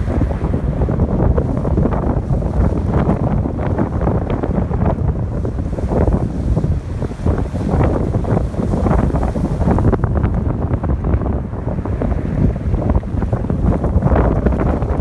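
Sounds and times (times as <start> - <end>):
ocean waves washing ashore: 0.0 - 15.0
wind buffeting microphone: 0.0 - 15.0.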